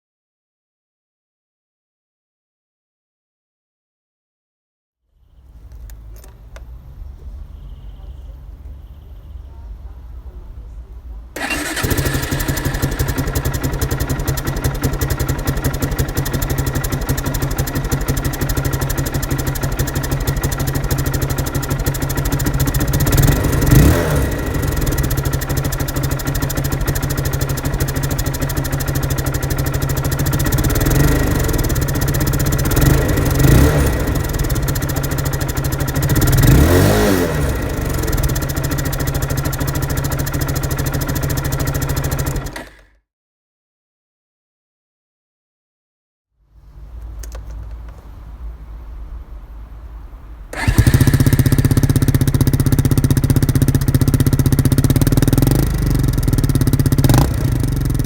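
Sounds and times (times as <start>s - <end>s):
quad engine idling and revving: 11.4s - 42.9s, 50.5s - 58.0s.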